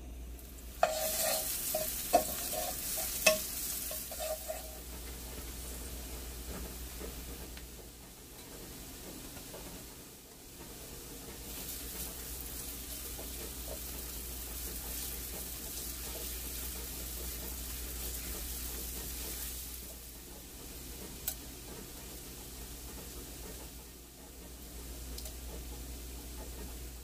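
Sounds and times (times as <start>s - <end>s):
food sizzling in hot oil: 0.0s - 7.3s, 11.3s - 21.4s.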